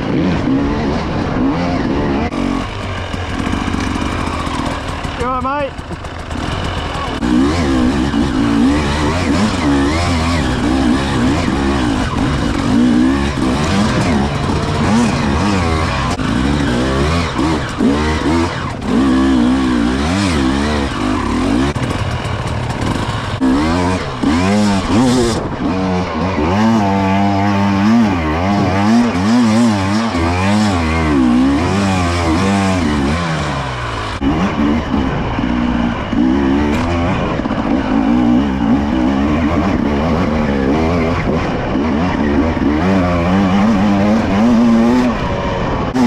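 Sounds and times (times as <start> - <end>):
motocross bike engine revving: 0.0 - 46.0.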